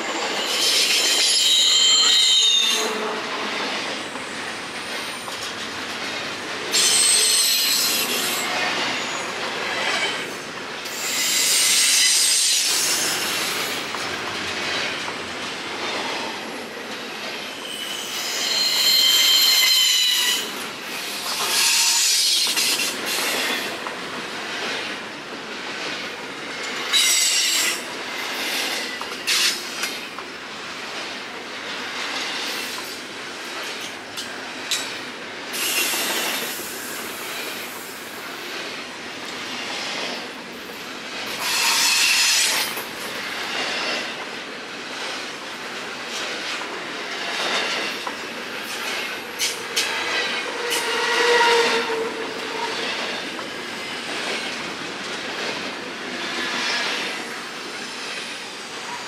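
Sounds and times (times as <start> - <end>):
train wheels squealing: 0.0 - 3.2, 6.7 - 13.8, 17.5 - 23.7, 26.8 - 29.6, 35.5 - 36.6, 41.4 - 42.8, 48.7 - 54.5
train rolling noise: 0.0 - 59.0.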